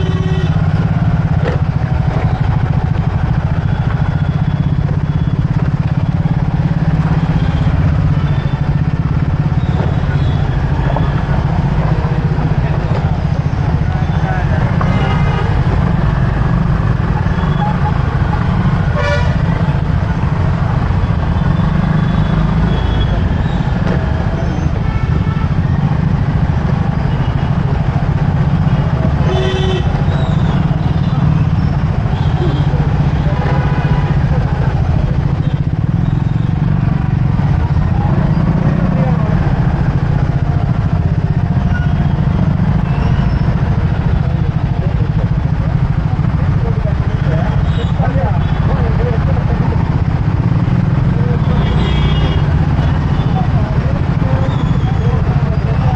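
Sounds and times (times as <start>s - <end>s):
vehicle horn toot: 0.0s - 0.8s, 18.9s - 19.6s, 29.2s - 31.2s, 51.5s - 52.6s
motorbike rumble in traffic: 0.0s - 55.9s.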